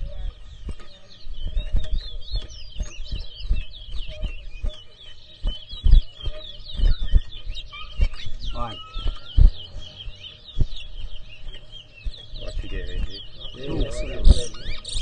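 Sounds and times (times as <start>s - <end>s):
low thumps and bumps: 0.0s - 14.6s
finch twittering song: 0.0s - 15.0s.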